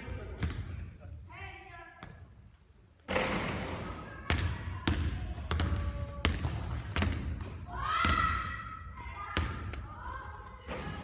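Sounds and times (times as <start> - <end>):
basketball bouncing on court: 0.1 - 0.9, 3.1 - 10.0.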